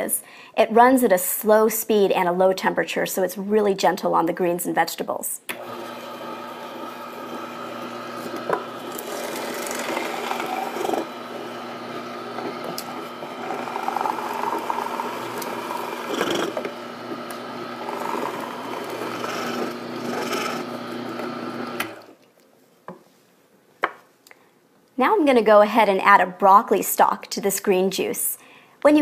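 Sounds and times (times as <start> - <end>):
juicer motor humming: 5.5 - 22.2.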